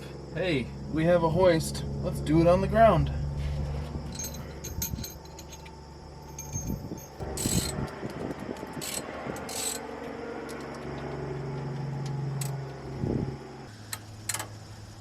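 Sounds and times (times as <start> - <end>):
metal tools clinking: 3.4 - 11.2.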